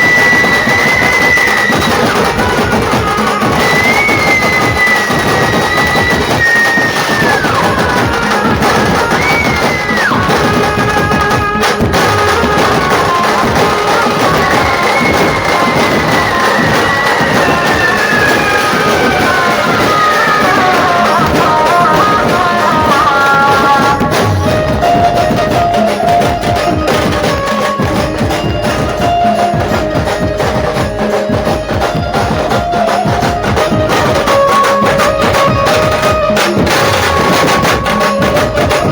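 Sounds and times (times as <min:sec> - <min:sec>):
fast drumming: 0:00.0 - 0:38.9
sliding lead melody: 0:00.0 - 0:38.9.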